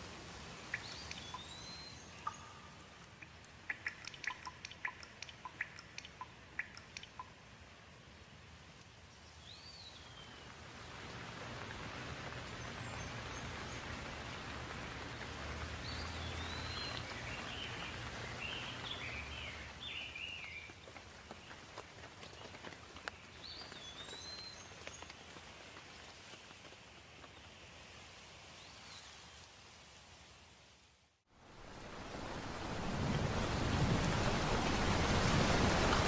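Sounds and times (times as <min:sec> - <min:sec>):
soft rain hiss: 0:00.0 - 0:36.0
small birds chirping: 0:00.6 - 0:07.4, 0:09.2 - 0:10.6, 0:12.3 - 0:26.6.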